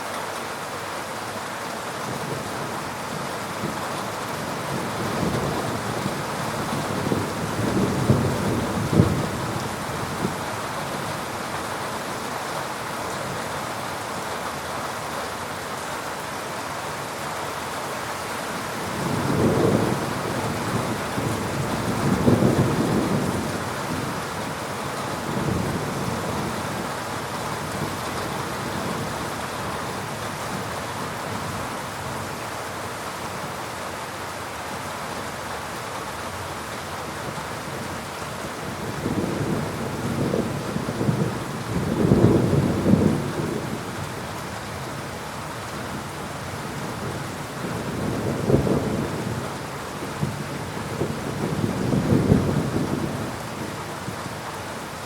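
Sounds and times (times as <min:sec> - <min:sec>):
heavy rain falling: 0:00.0 - 0:55.0
thunder rumbling: 0:04.7 - 0:10.4, 0:18.8 - 0:24.5, 0:38.6 - 0:43.9, 0:50.2 - 0:53.4.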